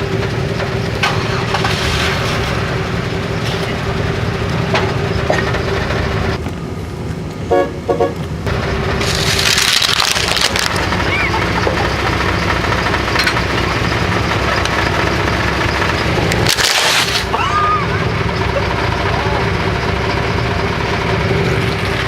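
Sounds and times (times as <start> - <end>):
car engine running: 0.0 - 7.4, 8.2 - 22.0
car horn toots: 7.5 - 8.2.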